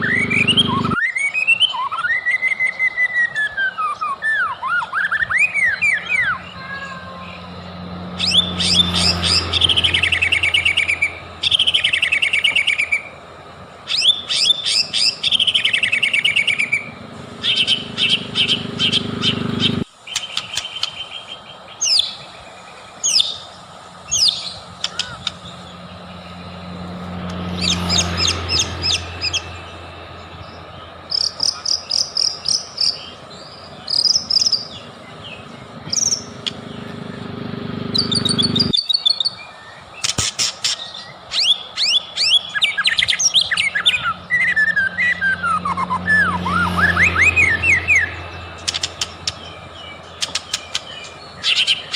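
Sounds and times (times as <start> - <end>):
bird singing trilled whistles: 0.0 - 6.6, 8.2 - 13.2, 13.9 - 22.2, 30.4 - 36.7, 37.9 - 51.9.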